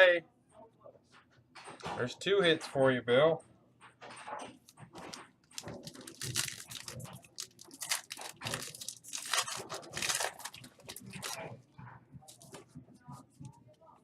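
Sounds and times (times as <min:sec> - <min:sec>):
foil wrappers tearing and crinkling: 0:05.0 - 0:11.5.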